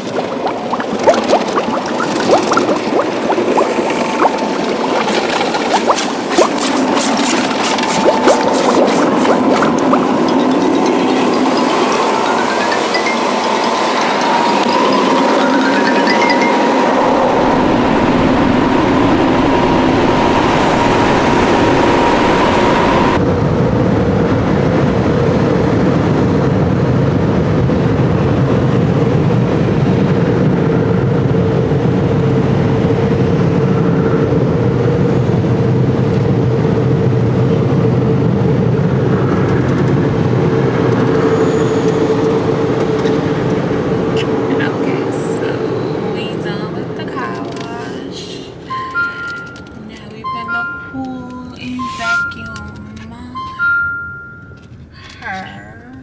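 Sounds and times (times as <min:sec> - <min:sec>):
car wash machinery rushing: 0:00.0 - 0:23.2, 0:34.4 - 0:49.7.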